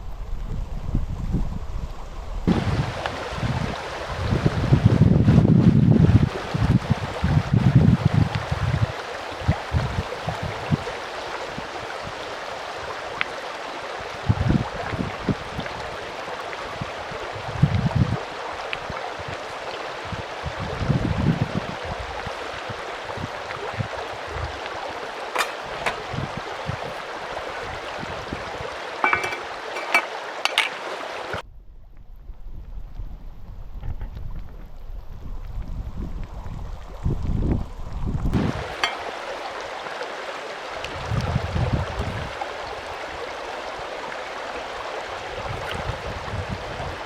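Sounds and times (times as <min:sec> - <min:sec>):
wind buffeting microphone: 0:00.0 - 0:13.2, 0:14.0 - 0:39.8, 0:40.7 - 0:47.0
stream rushing: 0:02.5 - 0:31.4, 0:38.4 - 0:47.0.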